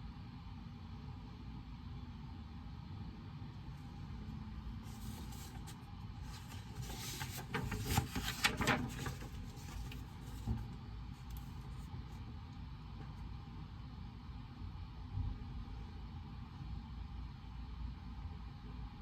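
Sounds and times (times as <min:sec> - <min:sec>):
low room hum: 0:00.0 - 0:19.0
rustling: 0:04.9 - 0:11.8.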